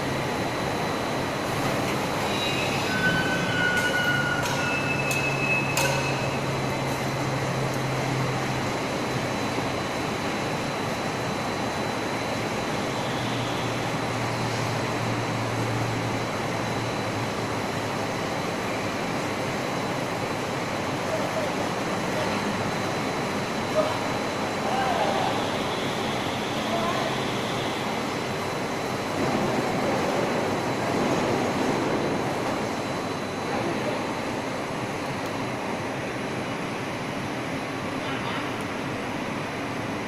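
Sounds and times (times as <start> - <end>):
high squeals: 2.2 - 6.5.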